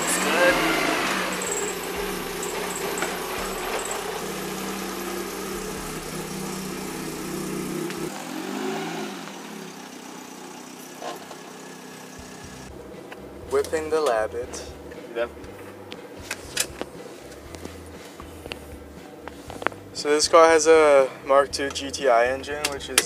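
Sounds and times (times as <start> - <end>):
engine revving: 0.0 - 12.8
car engine idling: 0.0 - 23.0.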